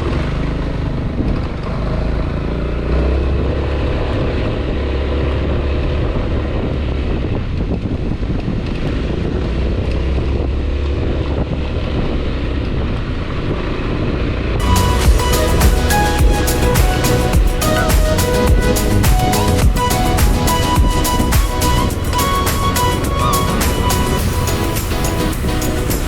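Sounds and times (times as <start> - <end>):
scooter engine cruising: 0.0 - 7.8, 10.2 - 26.0
wind buffeting microphone: 3.3 - 26.0.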